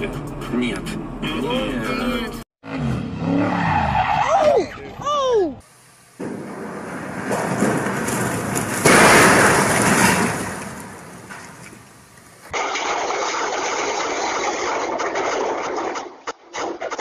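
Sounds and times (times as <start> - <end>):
hull crunching into concrete: 6.2 - 16.7.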